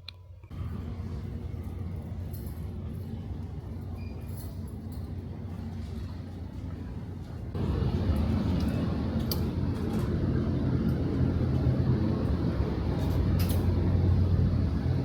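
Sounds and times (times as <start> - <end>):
low engine drone: 7.5 - 15.0.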